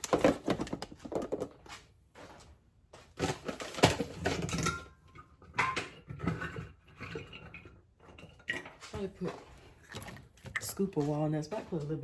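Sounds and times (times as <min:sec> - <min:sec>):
containers and spoon clattering: 0:03.2 - 0:12.0.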